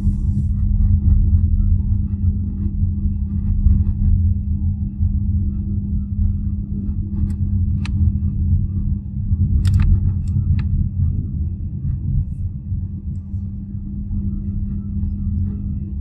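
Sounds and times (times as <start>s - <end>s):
steady low hum: 0.0s - 16.0s
sharp clicks: 9.6s - 10.6s.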